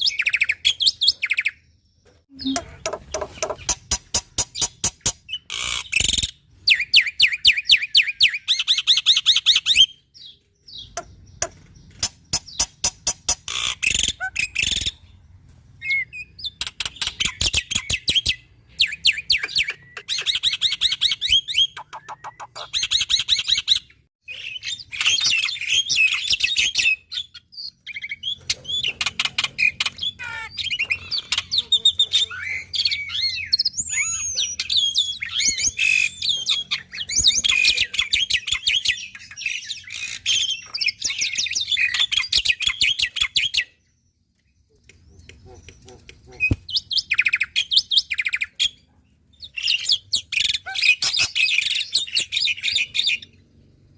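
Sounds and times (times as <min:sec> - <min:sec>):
starling singing: 0:02.3 - 0:03.8, 0:15.8 - 0:43.7.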